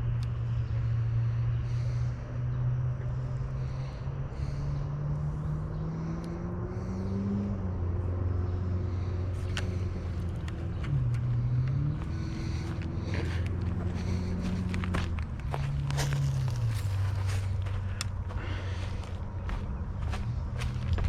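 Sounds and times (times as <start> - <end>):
car engine running: 0.0 - 21.0
road noise: 0.0 - 21.0.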